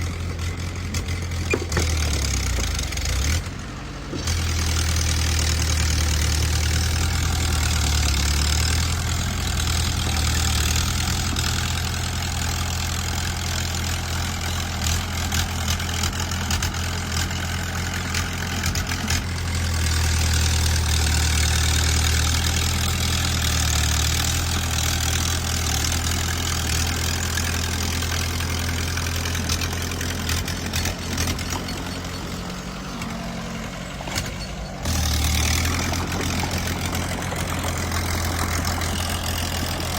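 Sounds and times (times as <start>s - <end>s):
bulldozer diesel engine: 0.0s - 39.9s
metal clanks and knocks: 0.9s - 3.0s, 30.4s - 33.2s.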